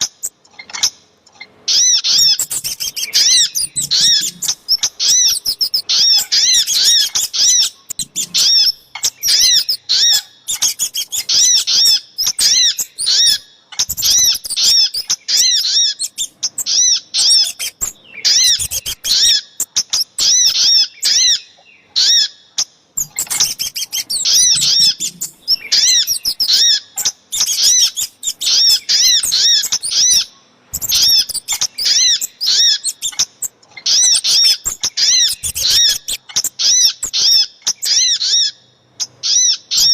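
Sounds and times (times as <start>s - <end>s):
songbirds high chirps: 0.0s - 39.9s.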